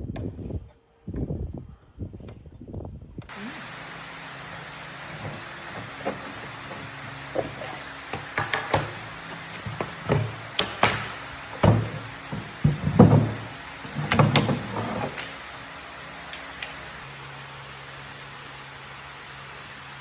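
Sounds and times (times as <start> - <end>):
faint steady hum: 0.0 - 20.0
irregular knocks and clunks: 5.1 - 15.2.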